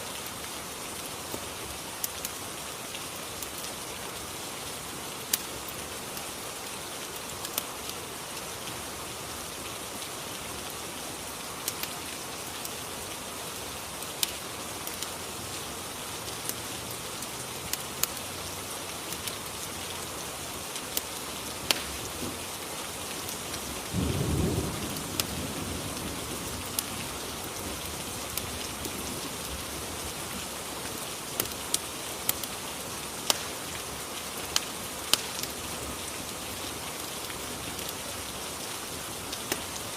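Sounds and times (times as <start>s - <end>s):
steady rain: 0.0s - 39.9s
fireplace crackling pops: 21.0s - 22.1s, 33.2s - 33.6s, 34.5s - 35.6s, 39.4s - 39.6s
rumble of thunder: 24.0s - 26.7s.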